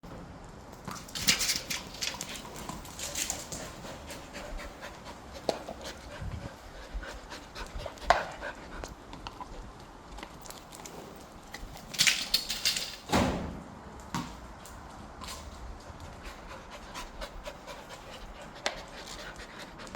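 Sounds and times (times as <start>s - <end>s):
dog panting: 2.4s - 9.8s, 16.0s - 19.9s.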